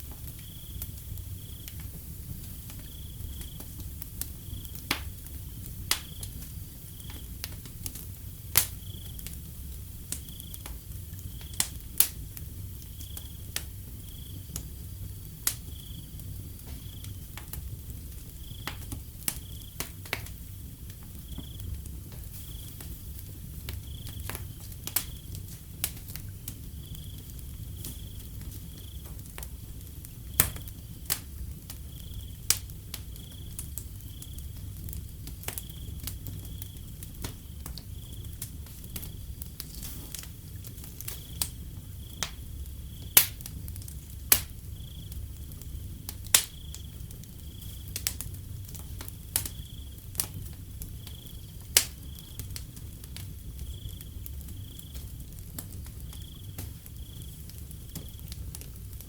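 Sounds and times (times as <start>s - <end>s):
cricket chirping: 0.0s - 7.6s, 8.3s - 11.8s, 12.6s - 20.4s, 21.0s - 29.3s, 30.1s - 58.5s
wood fire crackling and popping: 0.0s - 59.0s.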